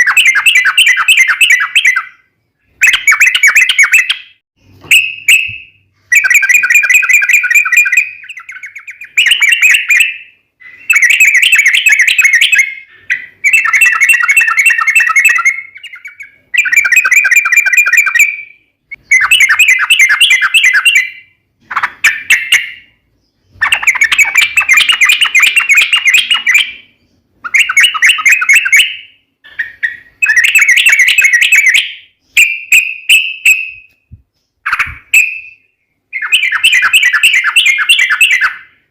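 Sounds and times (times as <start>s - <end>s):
bulbul singing: 0.0s - 38.9s.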